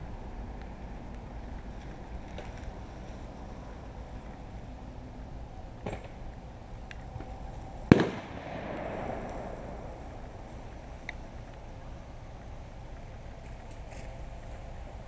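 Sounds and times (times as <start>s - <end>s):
faint gunshot: 7.9s - 9.9s
loud gunshot with echo: 7.9s - 9.9s.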